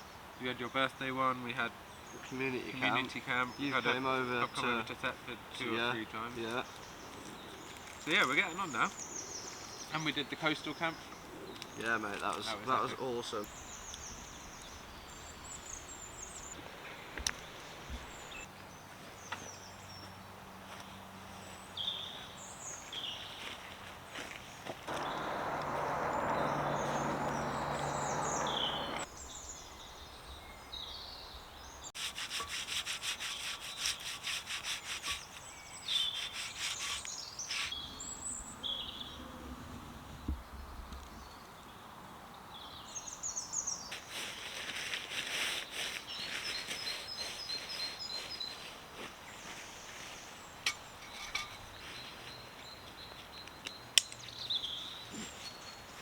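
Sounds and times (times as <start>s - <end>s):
small birds calling: 0.0s - 20.2s, 20.8s - 32.0s, 32.7s - 41.9s
steady rushing hiss: 24.9s - 29.1s
fast rhythmic scraping: 32.0s - 37.8s.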